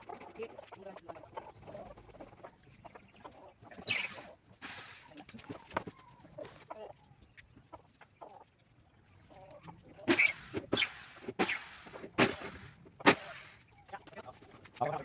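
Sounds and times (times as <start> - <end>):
short animal calls: 0.0 - 5.2
harsh animal calls: 0.0 - 6.8.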